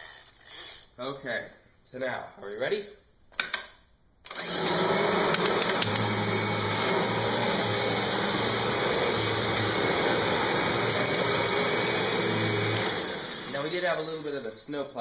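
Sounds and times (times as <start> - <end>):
upright vacuum cleaner running: 4.3 - 14.5.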